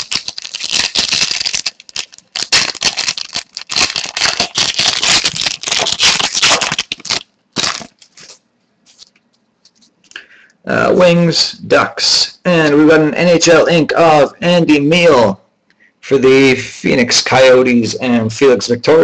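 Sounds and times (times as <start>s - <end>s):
trading cards shuffling: 0.0s - 10.1s.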